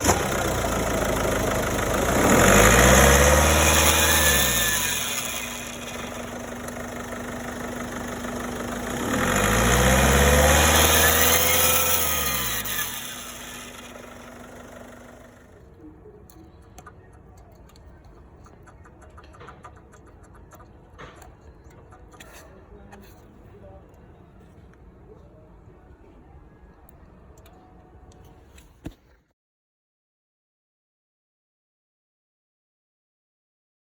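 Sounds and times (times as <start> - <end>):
car engine revving: 0.0 - 15.3.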